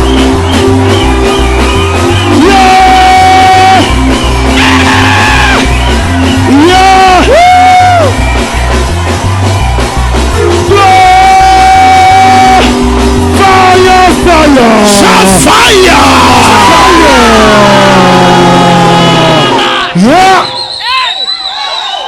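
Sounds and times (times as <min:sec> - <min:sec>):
live worship music: 0:00.0 - 0:20.7
people shouting: 0:02.1 - 0:08.4, 0:10.6 - 0:12.7, 0:13.4 - 0:22.0.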